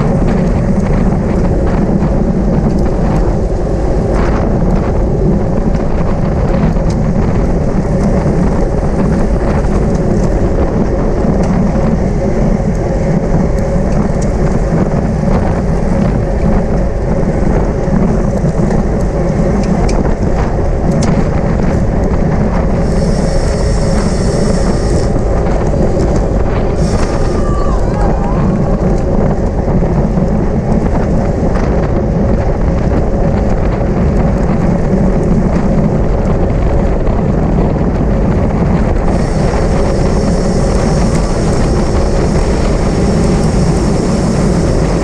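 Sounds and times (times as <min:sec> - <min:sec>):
wind rushing over microphone: 0:00.0 - 0:45.0
high even buzz: 0:22.7 - 0:29.2, 0:39.0 - 0:45.0.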